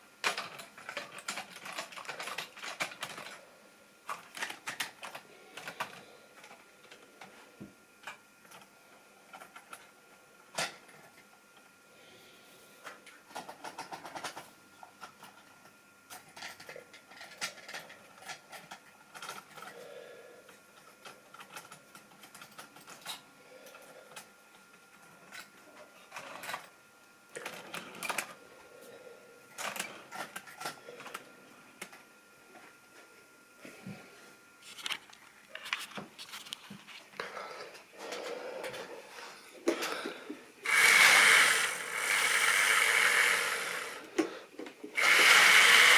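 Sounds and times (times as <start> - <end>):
electric motor whine: 40.6 - 45.9.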